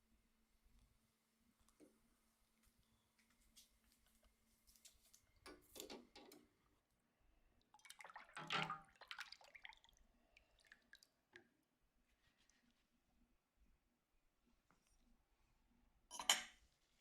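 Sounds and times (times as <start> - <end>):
liquid splashing: 7.7 - 11.2.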